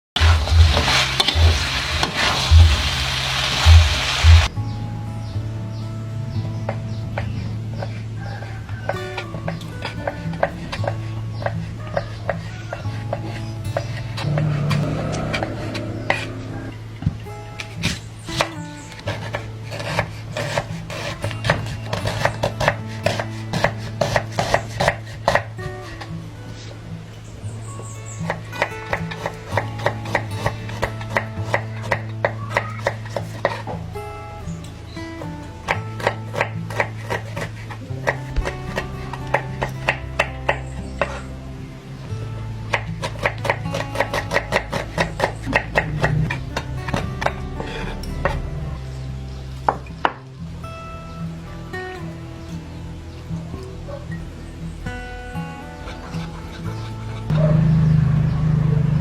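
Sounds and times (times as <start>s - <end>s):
knife chopping on cutting board: 17.9s - 25.5s, 28.3s - 33.7s, 35.7s - 41.2s, 42.7s - 48.4s.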